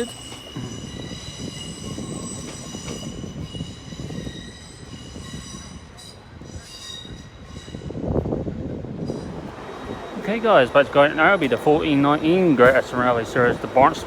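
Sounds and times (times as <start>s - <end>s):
high-pitched wheel squeal: 0.0s - 8.0s
train wheels rumbling on track: 0.0s - 14.0s.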